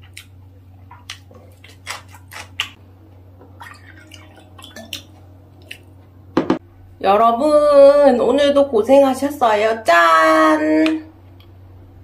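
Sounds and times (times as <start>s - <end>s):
person chewing: 0.0s - 2.8s
steady low hum: 0.0s - 12.0s.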